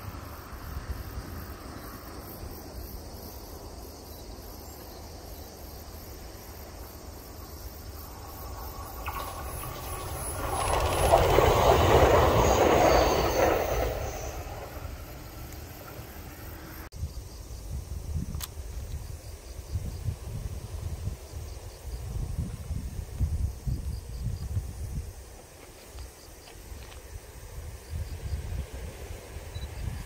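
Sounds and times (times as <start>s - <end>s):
electric train passing: 0.0s - 16.9s, 26.2s - 30.0s.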